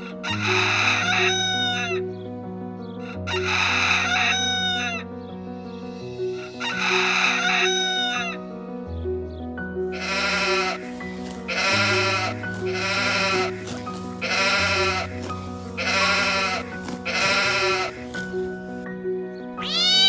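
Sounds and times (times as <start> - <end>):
background music: 0.0 - 20.0
sheep bleating: 10.0 - 18.2, 19.6 - 20.0.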